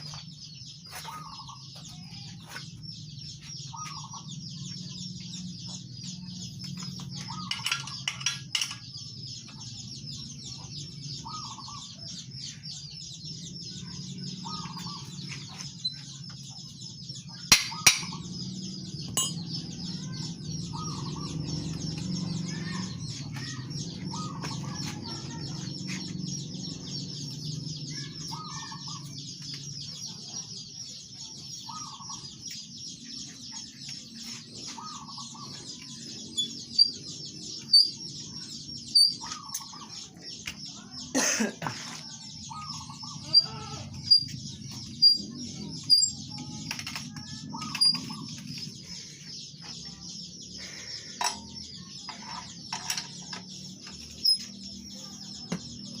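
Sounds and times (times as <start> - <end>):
birds chirping and clucking: 0.0 - 56.0
high-pitched chirring: 19.1 - 20.1.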